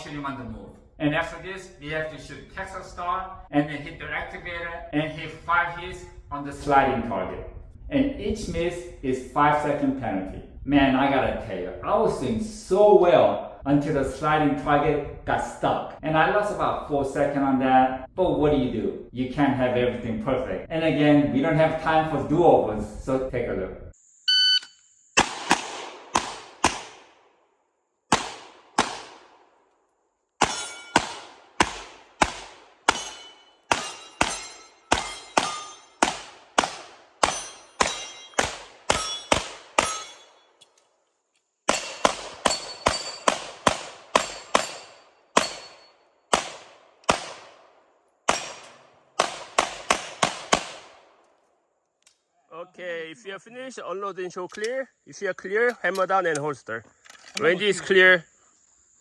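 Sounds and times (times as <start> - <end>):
pistol shots: 25.2 - 27.3, 28.1 - 29.6, 30.4 - 40.4, 41.7 - 51.2
bullets clanging on steel targets: 30.4 - 40.8, 41.7 - 46.5, 48.3 - 50.4.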